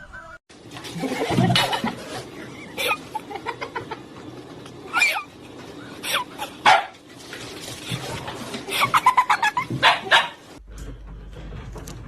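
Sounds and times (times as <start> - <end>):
dog barking: 6.7 - 7.0, 9.8 - 10.4.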